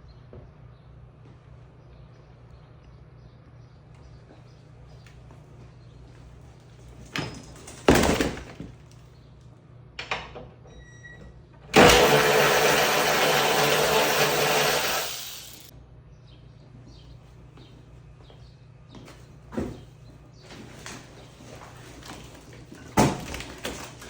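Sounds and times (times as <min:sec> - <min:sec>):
power tool driving bolts: 0:11.7 - 0:15.7.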